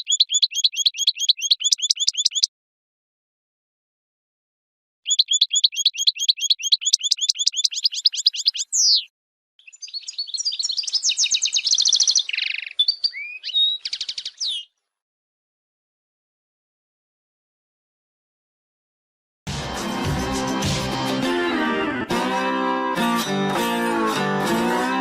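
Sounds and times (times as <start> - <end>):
goldfinch trilling and twittering: 0.0 - 2.5, 5.1 - 14.7.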